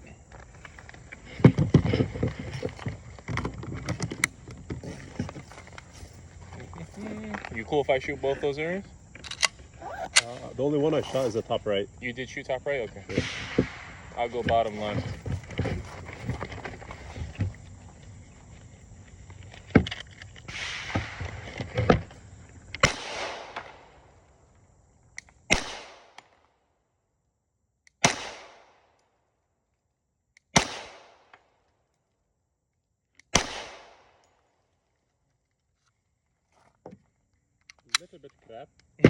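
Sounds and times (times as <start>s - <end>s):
rustling handling noise: 0.0s - 22.3s
pistol shots with echo: 22.8s - 23.9s, 25.5s - 26.2s, 28.0s - 28.8s, 30.6s - 31.3s, 33.3s - 34.2s.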